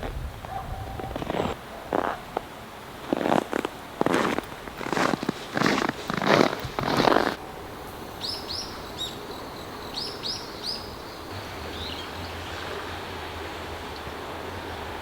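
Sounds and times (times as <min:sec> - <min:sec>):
outdoor background noise: 0:00.0 - 0:15.0
small bird chirping: 0:08.2 - 0:12.1.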